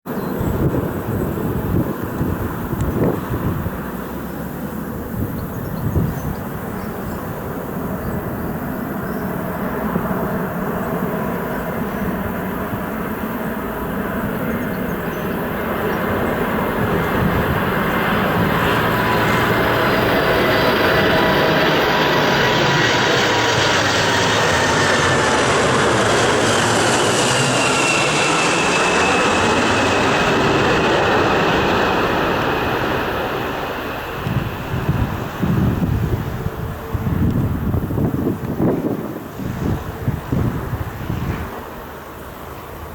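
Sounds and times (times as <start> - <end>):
jet engines rumbling: 0.1 - 42.9
high engine whine falling in pitch: 14.4 - 34.6.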